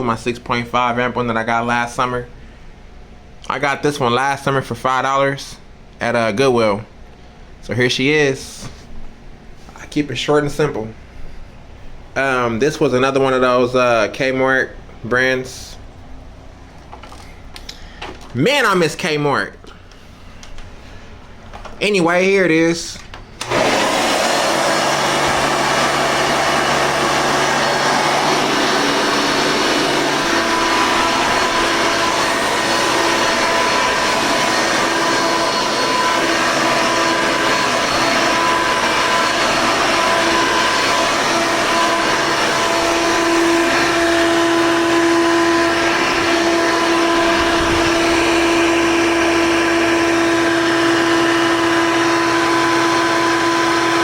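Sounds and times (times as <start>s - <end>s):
vacuum cleaner running: 23.4s - 54.0s.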